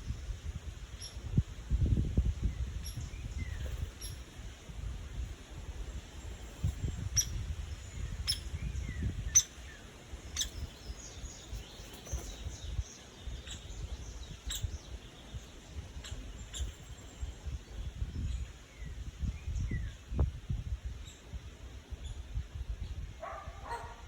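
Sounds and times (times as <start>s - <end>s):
birds chirping: 5.7s - 20.0s, 21.0s - 24.0s.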